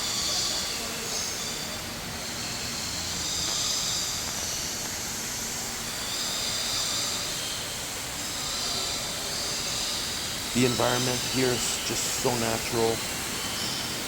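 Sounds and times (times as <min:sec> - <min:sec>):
indoor waterfall rushing: 0:00.1 - 0:14.0
high shimmer: 0:10.6 - 0:13.7.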